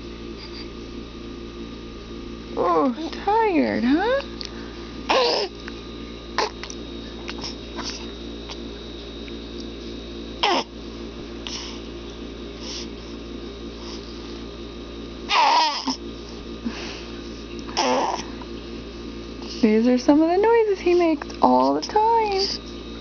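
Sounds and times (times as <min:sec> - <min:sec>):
infant grunting: 0:05.1 - 0:05.5, 0:10.4 - 0:10.7, 0:15.3 - 0:16.0, 0:17.8 - 0:18.2.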